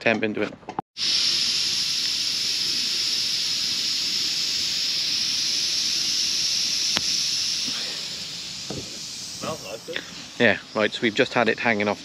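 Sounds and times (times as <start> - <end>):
pressure cooker steam hissing: 1.0 - 12.0.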